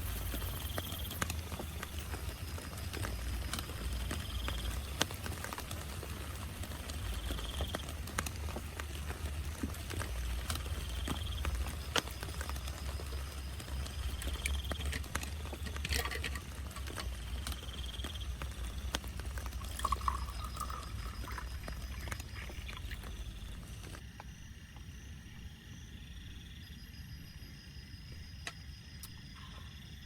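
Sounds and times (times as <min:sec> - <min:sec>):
rain pattering on a tent: 0:00.0 - 0:24.0.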